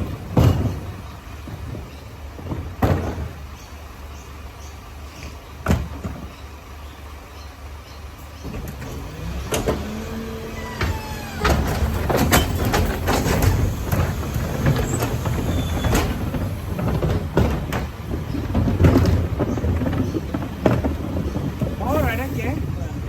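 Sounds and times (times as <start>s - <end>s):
metal and bins banging: 0.0s - 3.7s, 8.4s - 23.0s
garbage truck rumbling: 0.0s - 23.0s
short falling squeal: 10.5s - 11.8s.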